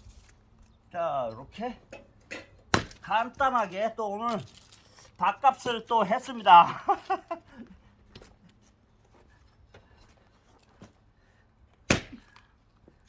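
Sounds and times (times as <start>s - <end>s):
axe striking log: 2.7s - 3.1s, 11.9s - 12.4s.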